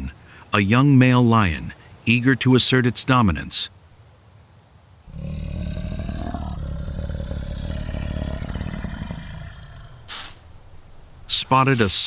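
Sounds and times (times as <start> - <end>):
lion growling: 5.1 - 11.3.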